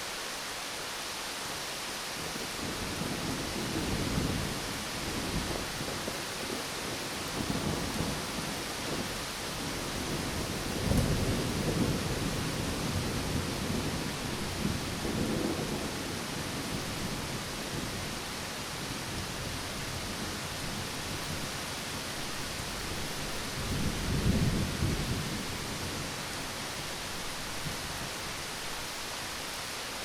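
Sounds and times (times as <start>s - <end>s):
heavy rain hissing: 0.0s - 30.0s
distant thunder rumbling: 7.4s - 18.2s.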